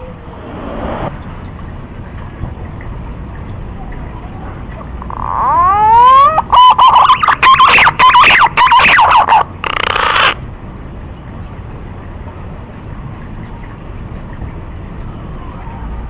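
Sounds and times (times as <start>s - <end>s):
whistled warbling pigeon call: 5.0s - 10.4s.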